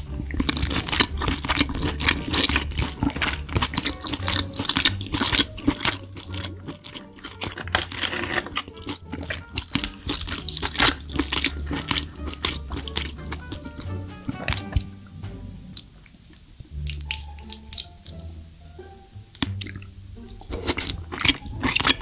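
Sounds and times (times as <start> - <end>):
wet smacking chewing sounds: 0.0 - 18.4, 19.3 - 22.0.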